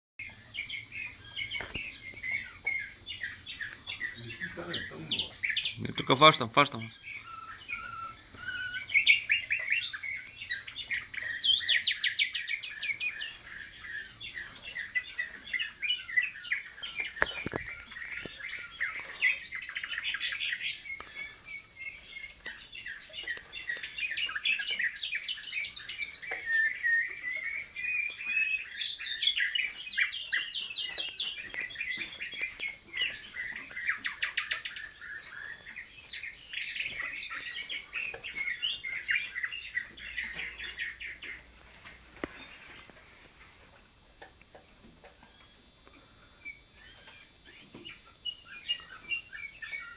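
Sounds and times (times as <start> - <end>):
birds singing trills and chirps: 0.2 - 49.9.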